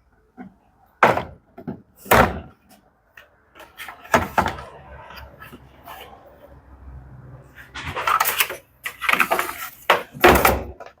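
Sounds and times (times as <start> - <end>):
hard knocks and clunks: 0.4 - 2.7, 3.9 - 4.8.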